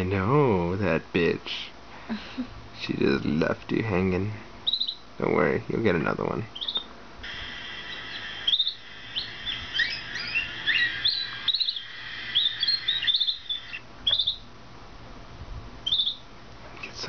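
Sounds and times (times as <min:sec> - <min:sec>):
canary chirping: 0:04.6 - 0:05.1, 0:06.5 - 0:14.5, 0:15.8 - 0:16.3
steady high trill: 0:07.2 - 0:14.4.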